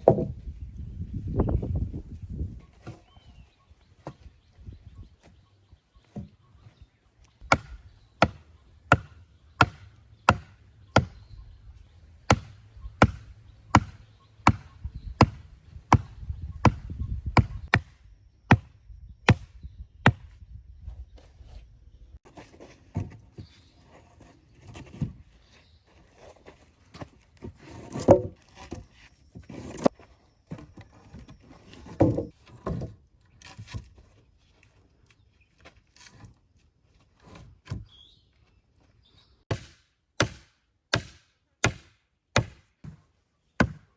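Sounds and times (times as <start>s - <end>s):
wood being chopped: 0.0s - 0.3s, 7.4s - 11.2s, 12.3s - 18.7s, 19.3s - 20.3s, 39.5s - 43.0s, 43.6s - 43.9s
wood knocks and handling: 0.0s - 0.4s, 26.2s - 34.2s.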